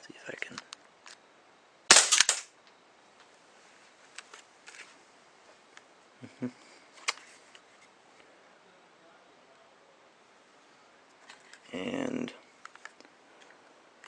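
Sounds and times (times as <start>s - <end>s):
airsoft pistol gas shot: 1.9s - 2.5s
pistol hammer snapping: 1.9s - 2.5s.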